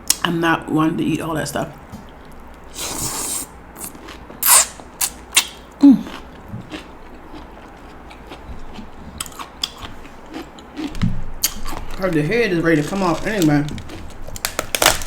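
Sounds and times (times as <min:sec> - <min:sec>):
crab shell crackling and snapping: 0:10.9 - 0:15.0.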